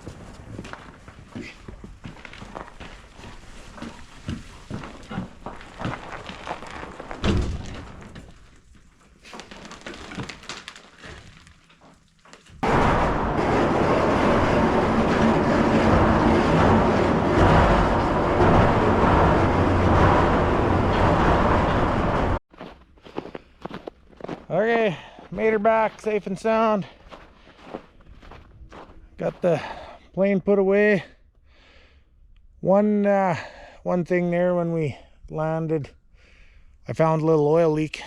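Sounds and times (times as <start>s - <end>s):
knocks and rustles: 0.0s - 22.4s.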